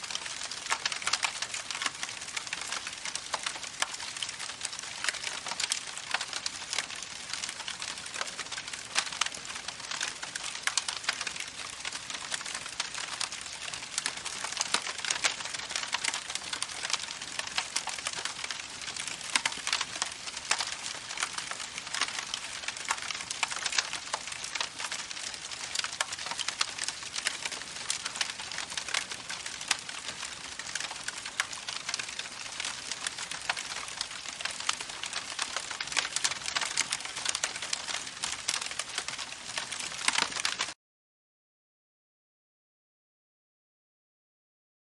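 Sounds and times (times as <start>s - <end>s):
campfire crackling: 0.1s - 40.8s.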